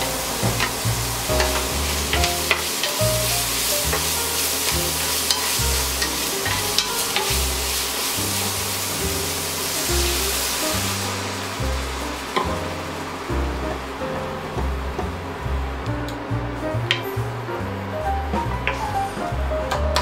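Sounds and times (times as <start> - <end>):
food sizzling in a frying pan: 0.0 - 15.6
background music with bass: 0.0 - 20.0.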